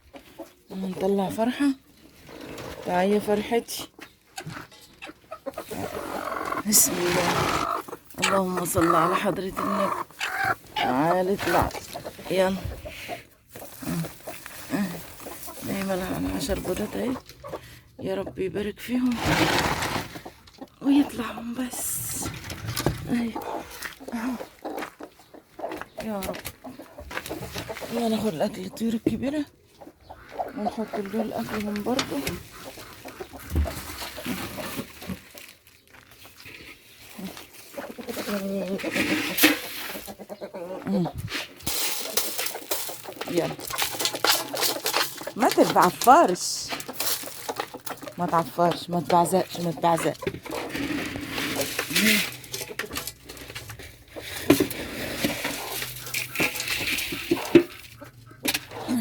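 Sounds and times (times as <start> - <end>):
beaks and feet clattering in feed: 0.0 - 59.0
chickens clucking: 0.0 - 59.0
birds calling: 3.7 - 17.9, 23.0 - 38.8, 55.2 - 59.0.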